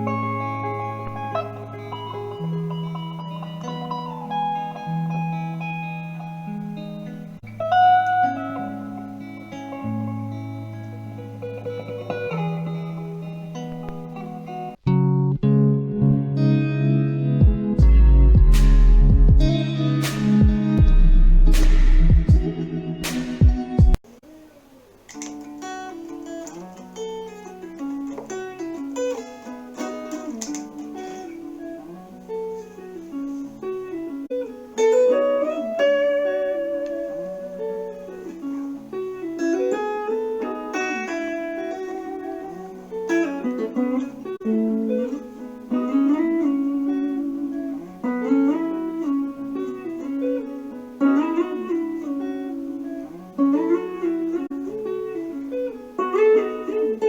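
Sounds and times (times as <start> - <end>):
plucked guitar notes: 0.0 - 24.0, 25.1 - 57.0
low bass figure: 17.4 - 24.0.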